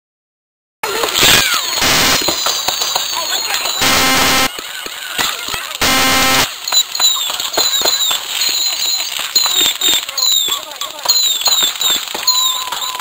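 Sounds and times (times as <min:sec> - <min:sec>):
fireworks crackling and popping: 0:00.8 - 0:13.0
fireworks whistling: 0:01.0 - 0:13.0
short flat buzzing tones: 0:01.8 - 0:02.2, 0:03.8 - 0:04.5, 0:05.8 - 0:06.5.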